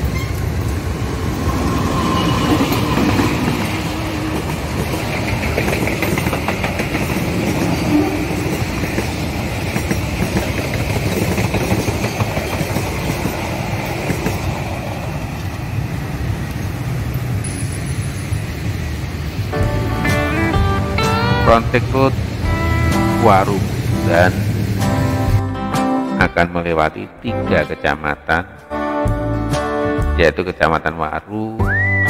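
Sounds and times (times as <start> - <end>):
wheels clicking: 0.0 - 19.4
train passing on rails: 0.0 - 25.5.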